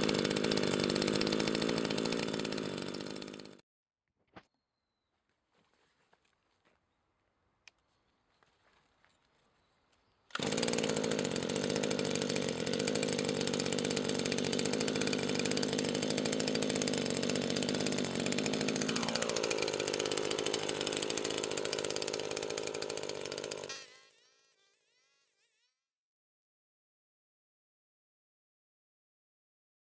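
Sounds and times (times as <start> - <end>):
brush cutter engine running: 0.0 - 3.6, 10.3 - 25.6.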